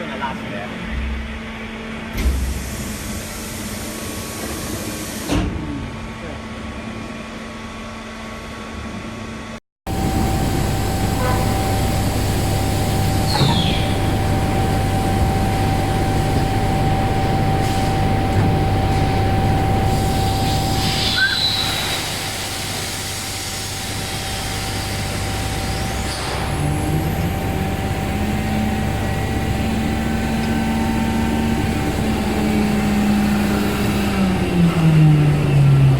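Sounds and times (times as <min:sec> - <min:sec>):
industrial machine drone: 0:00.0 - 0:35.9
short squeals or air hisses: 0:13.2 - 0:14.0, 0:19.9 - 0:23.5.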